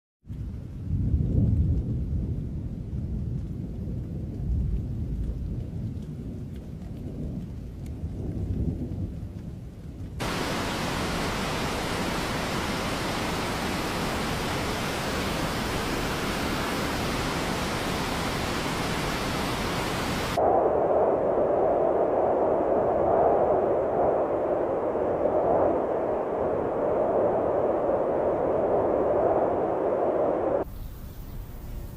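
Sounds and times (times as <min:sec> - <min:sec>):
thunder rumbling: 0:00.4 - 0:30.7
bright steady hiss: 0:10.2 - 0:20.4, 0:30.6 - 0:31.9
dull steady hiss: 0:10.2 - 0:20.4, 0:26.6 - 0:31.9.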